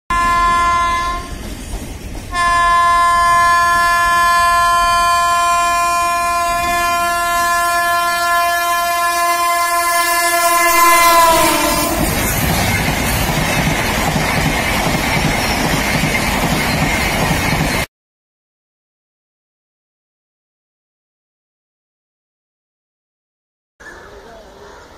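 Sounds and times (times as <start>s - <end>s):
locomotive horn blast: 0.1s - 1.4s, 2.3s - 12.3s
train coaches rumbling and clattering: 0.2s - 9.0s, 10.6s - 17.9s.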